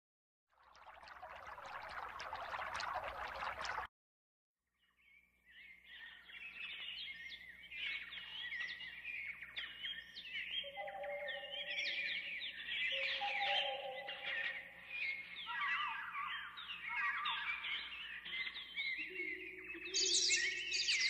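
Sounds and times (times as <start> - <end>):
birds chirping and twittering: 4.8 - 21.0.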